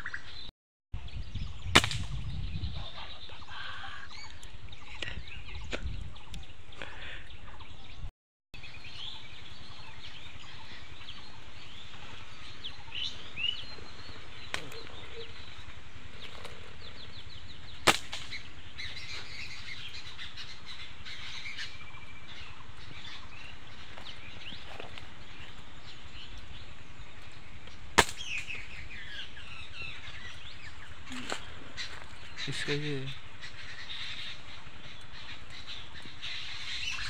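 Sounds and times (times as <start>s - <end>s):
small birds chirping: 0.0s - 37.0s
sharp snap: 1.7s - 2.2s, 17.8s - 18.4s, 28.0s - 28.6s.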